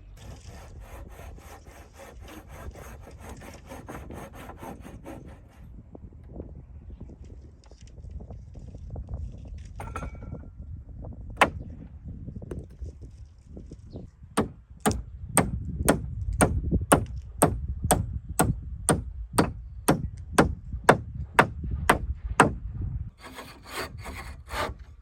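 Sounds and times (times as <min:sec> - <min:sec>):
hand tool striking wood: 0:11.4 - 0:11.6, 0:14.4 - 0:22.6.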